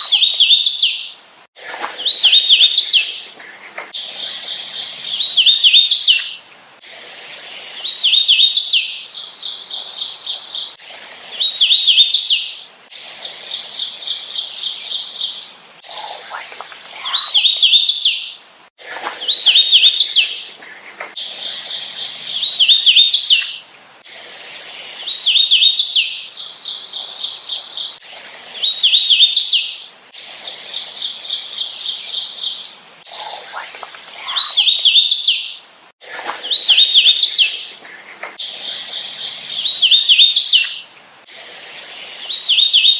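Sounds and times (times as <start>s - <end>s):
warbler singing whistled notes: 0.0s - 1.2s, 2.0s - 3.4s, 4.0s - 6.5s, 7.6s - 12.7s, 13.5s - 18.5s, 19.2s - 20.5s, 21.2s - 23.7s, 24.8s - 28.0s, 28.6s - 29.9s, 30.7s - 35.7s, 36.4s - 37.8s, 38.4s - 40.9s, 42.0s - 42.9s.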